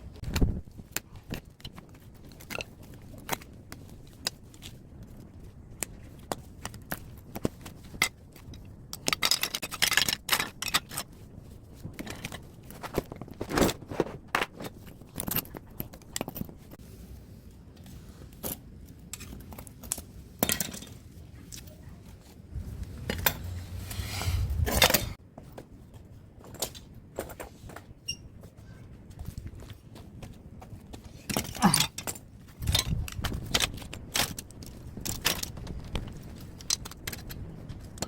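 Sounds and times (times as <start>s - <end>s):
metal clicks and clattering: 6.3s - 11.1s
metal scraping: 22.5s - 25.2s.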